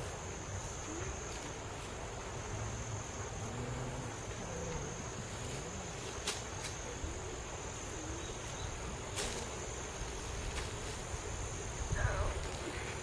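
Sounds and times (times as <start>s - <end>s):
crickets chirring: 0.0s - 13.0s
low rumble of wind: 0.0s - 13.0s.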